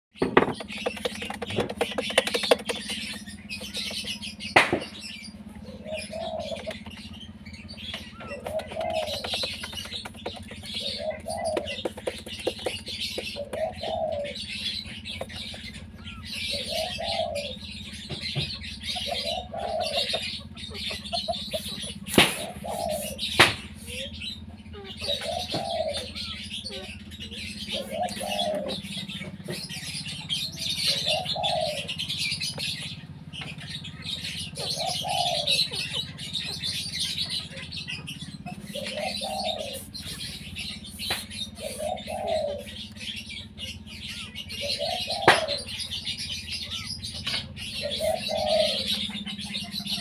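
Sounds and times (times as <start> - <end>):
birds chirping: 0.1 - 50.0
sharp knocks: 3.8 - 5.0.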